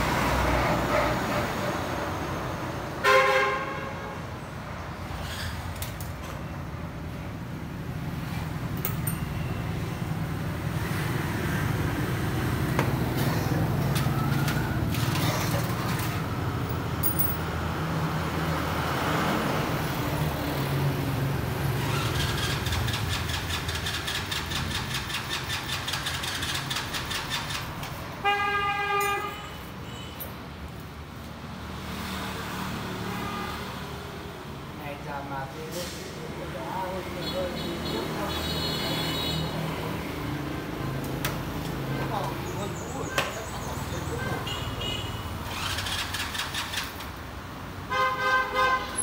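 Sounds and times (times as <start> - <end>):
traffic noise: 0.0 - 49.0
car horn honk: 3.0 - 4.2, 28.2 - 30.2, 47.9 - 49.0.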